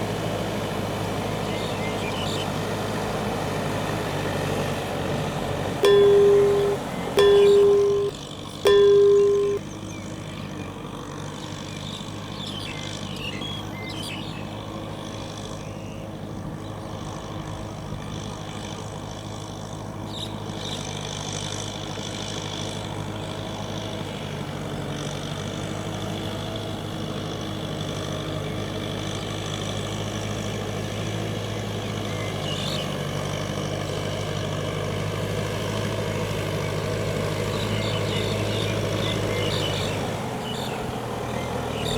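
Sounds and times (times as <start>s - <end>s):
tractor diesel engine running: 0.0s - 41.9s
loud steady beep: 5.8s - 9.6s.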